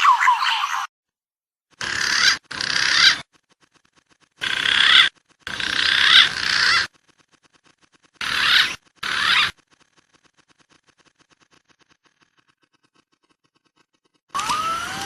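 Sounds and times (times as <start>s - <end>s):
warbling pigeon calls: 1.8s - 3.4s, 4.4s - 9.6s.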